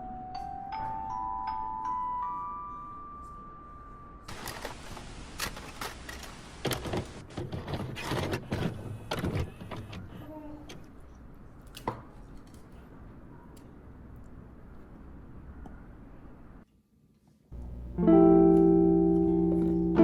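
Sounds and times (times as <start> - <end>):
glockenspiel music: 0.0 - 4.3.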